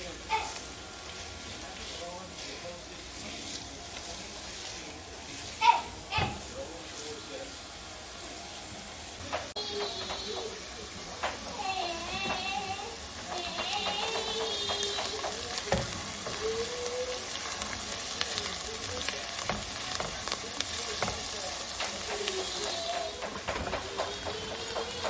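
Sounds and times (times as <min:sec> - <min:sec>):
vegetables sizzling in butter: 0:00.0 - 0:25.0
utensil stirring with clicks: 0:09.2 - 0:25.0.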